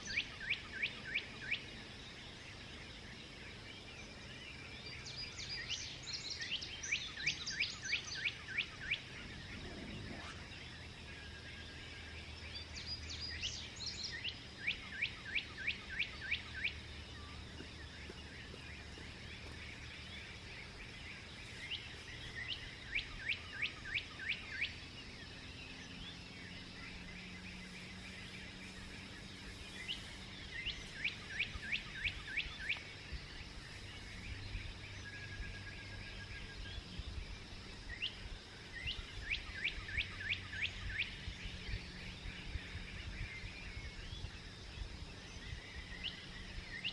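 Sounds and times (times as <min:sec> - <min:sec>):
steady outdoor hiss: 0:00.0 - 0:46.9
songbird singing falling notes: 0:27.0 - 0:37.2.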